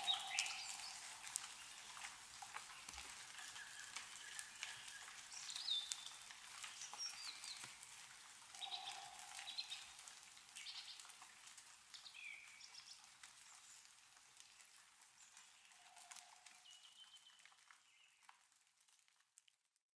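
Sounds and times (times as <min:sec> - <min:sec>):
small birds chirping: 0:00.0 - 0:11.2
meltwater dripping: 0:00.0 - 0:19.7.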